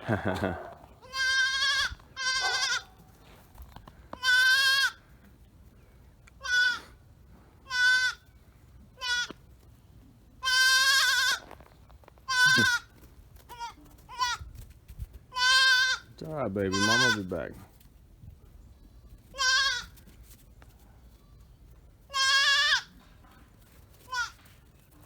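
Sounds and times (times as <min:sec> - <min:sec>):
goat kid bleating: 0:01.0 - 0:02.9, 0:04.2 - 0:05.0, 0:06.4 - 0:06.9, 0:07.6 - 0:08.2, 0:09.0 - 0:09.4, 0:10.4 - 0:11.4, 0:12.2 - 0:14.5, 0:15.3 - 0:17.3, 0:19.3 - 0:20.0, 0:22.1 - 0:23.0, 0:24.0 - 0:24.4.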